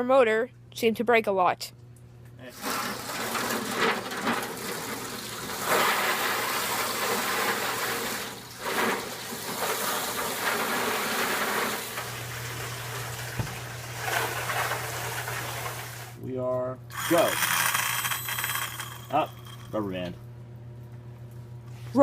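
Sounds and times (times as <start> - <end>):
water running and splashing: 2.6 - 16.2
steady low hum: 12.0 - 22.0.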